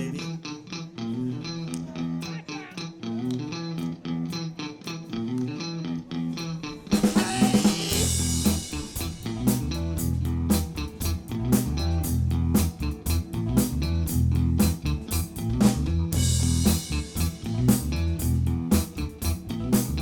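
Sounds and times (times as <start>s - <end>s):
bass guitar: 0.0s - 20.0s
electric guitar: 0.0s - 20.0s
drum kit: 6.5s - 20.0s.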